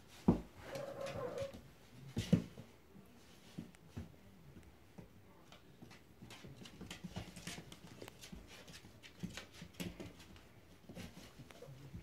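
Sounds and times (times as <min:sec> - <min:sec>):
puppies playing clicks and scuffles: 0:03.6 - 0:12.0.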